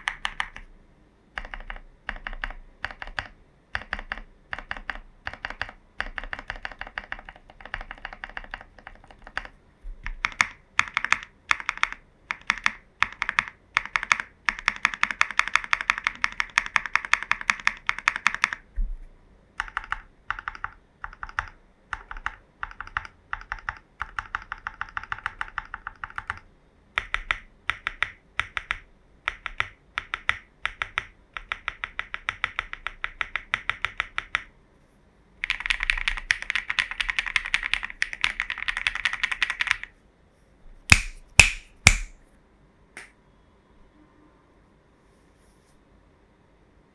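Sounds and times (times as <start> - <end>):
mechanical keyboard typing: 0.0 - 0.7, 1.3 - 18.6, 19.6 - 34.5, 35.4 - 39.9.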